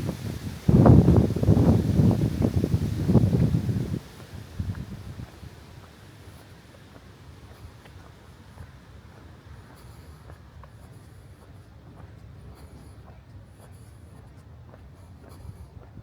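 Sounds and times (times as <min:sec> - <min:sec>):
wind on microphone: 0:00.0 - 0:05.8.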